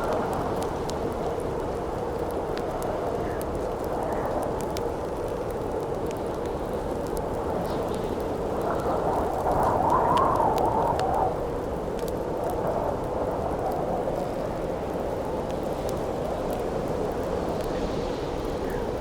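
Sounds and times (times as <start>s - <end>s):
campfire crackling and popping: 0.0s - 19.0s
howling wind: 0.0s - 19.0s.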